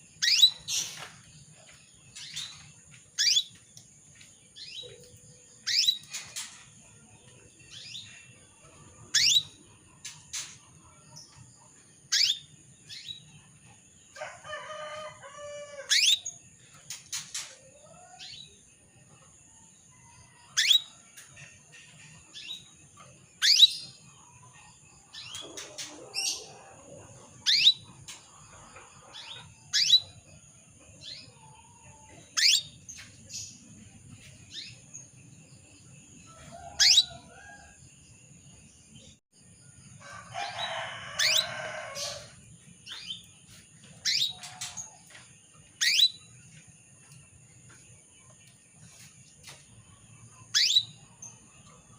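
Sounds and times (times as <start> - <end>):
canary chirping: 0.1 - 1.1, 2.1 - 3.6, 4.6 - 6.6, 9.0 - 9.6, 12.0 - 13.3, 15.9 - 17.5, 20.5 - 20.9, 23.4 - 24.1, 27.4 - 28.2, 29.0 - 30.3, 32.4 - 33.6, 36.8 - 37.3, 40.6 - 43.3, 44.0 - 44.8, 45.8 - 46.4, 50.4 - 51.4.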